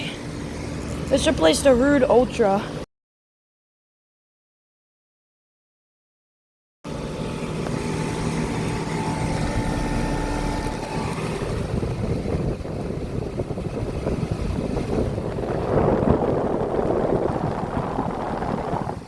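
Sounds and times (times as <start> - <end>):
condenser fan blowing air: 0.0 - 2.8, 6.9 - 19.0
heat pump compressor hum: 0.0 - 2.8, 6.9 - 19.0.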